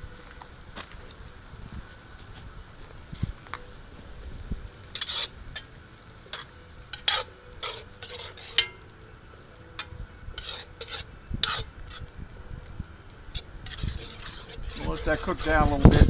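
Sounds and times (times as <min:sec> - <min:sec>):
low sizzle: 0:00.0 - 0:16.0
spoon scraping a pan: 0:04.6 - 0:16.0.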